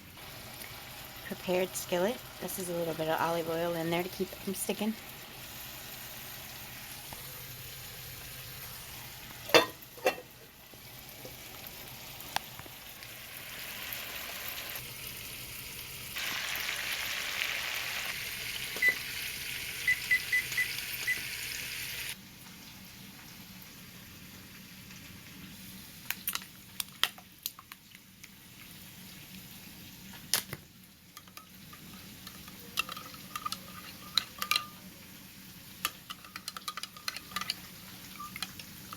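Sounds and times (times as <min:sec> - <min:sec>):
food sizzling in a skillet: 0:00.2 - 0:22.2
utensils clinking against pan: 0:09.4 - 0:10.4, 0:31.2 - 0:34.9, 0:35.9 - 0:38.9.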